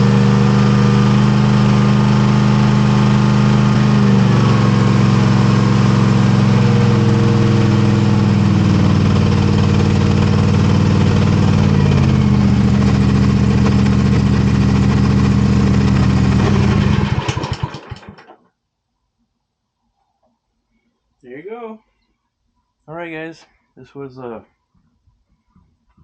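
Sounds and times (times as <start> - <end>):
mower engine running: 0.0 - 18.4.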